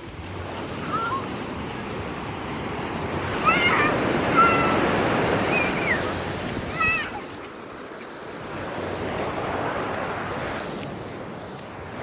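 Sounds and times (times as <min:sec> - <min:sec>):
sea surf washing up beach: 0:00.0 - 0:12.0
children shouting and squealing: 0:00.8 - 0:01.4, 0:03.2 - 0:07.5.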